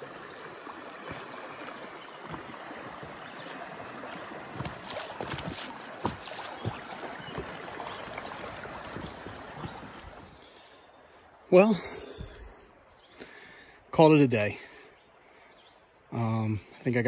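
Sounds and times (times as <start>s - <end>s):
creek water splashing: 0.0s - 17.0s.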